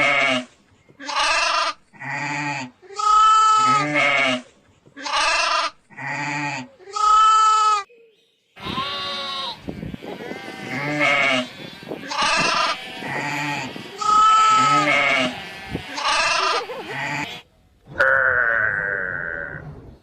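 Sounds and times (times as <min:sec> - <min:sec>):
goats bleating: 0:01.0 - 0:04.4, 0:05.0 - 0:07.8, 0:08.6 - 0:17.4.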